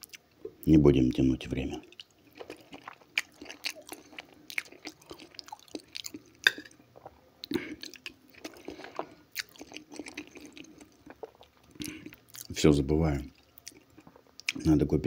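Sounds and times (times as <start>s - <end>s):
chewing and biting food: 1.9s - 12.6s, 13.3s - 14.6s.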